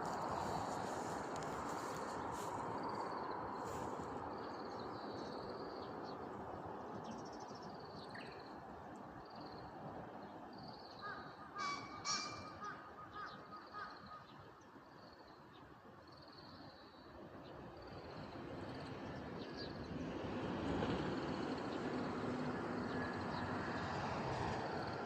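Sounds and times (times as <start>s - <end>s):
wild birds calling: 11.1s - 14.3s.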